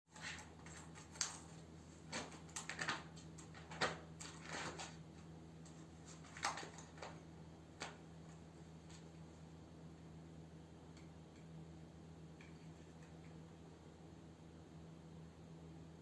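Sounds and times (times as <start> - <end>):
kittens tapping and scratching: 0.1 - 9.1
faint steady hum: 0.1 - 16.0.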